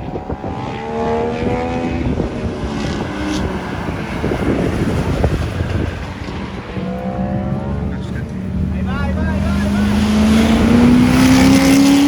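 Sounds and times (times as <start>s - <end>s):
car engine passing: 0.0s - 12.0s
road and traffic noise: 0.0s - 12.0s.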